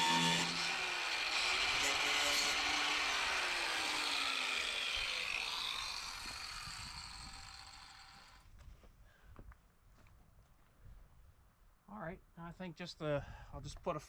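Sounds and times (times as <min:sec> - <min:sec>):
angle grinder spinning down: 0:00.0 - 0:08.4.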